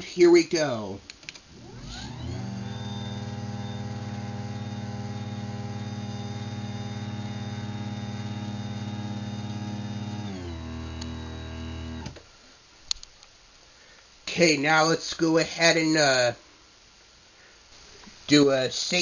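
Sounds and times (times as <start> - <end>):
garage door opener motor running: 1.5 - 12.2.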